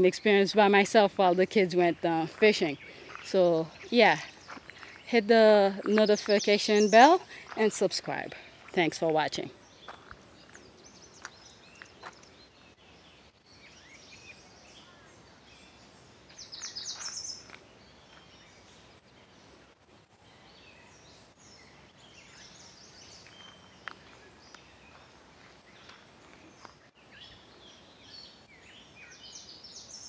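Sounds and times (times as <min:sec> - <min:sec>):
birds singing: 0:00.0 - 0:19.6, 0:20.2 - 0:30.0
bird trill: 0:16.3 - 0:17.5.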